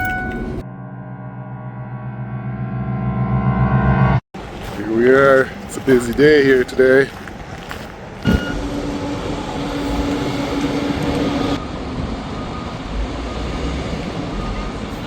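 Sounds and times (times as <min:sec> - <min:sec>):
vehicle engine hum: 0:04.4 - 0:15.0
faint short beeps: 0:08.3 - 0:08.6.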